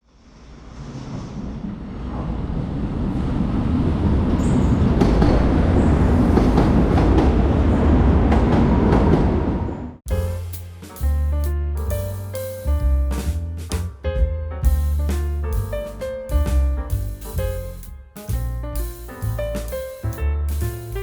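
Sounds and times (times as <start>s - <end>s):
train rumbling on rails: 0.1s - 10.3s
piano music: 10.1s - 21.0s.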